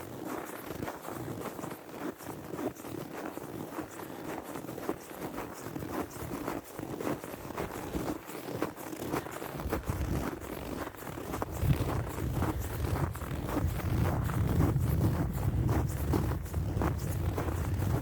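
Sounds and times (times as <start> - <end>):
footsteps in snow: 0.1 - 18.0
wind rumble on microphone: 9.6 - 18.0.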